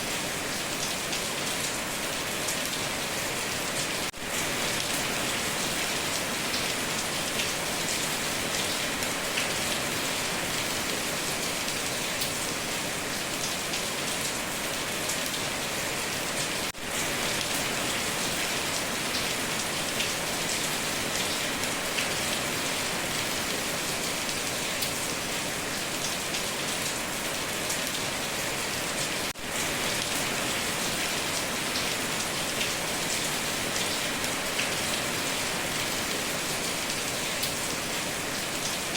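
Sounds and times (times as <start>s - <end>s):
heavy rain on a tin roof: 0.0s - 38.9s.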